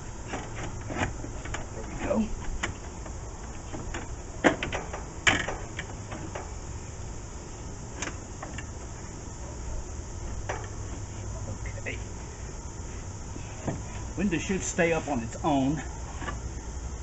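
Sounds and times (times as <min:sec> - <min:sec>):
sharp knocks and clicks: 0:00.3 - 0:06.6, 0:10.2 - 0:10.8.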